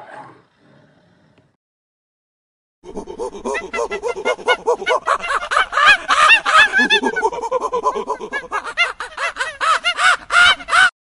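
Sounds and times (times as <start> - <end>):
macaques calling: 2.9 - 11.0.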